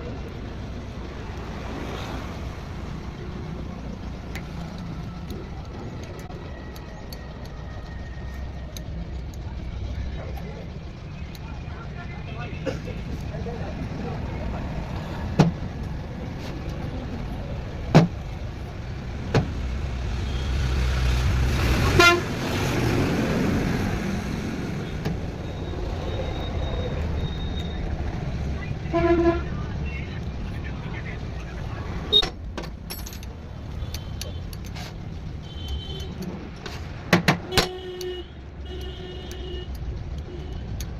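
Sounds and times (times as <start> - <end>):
vehicle engine rumbling: 0.0 - 40.9
sharp metallic clinks: 32.1 - 34.7.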